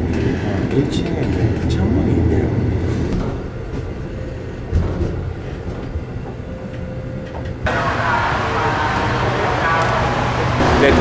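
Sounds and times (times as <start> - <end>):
train carriage rumbling and rattling: 0.0 - 11.0.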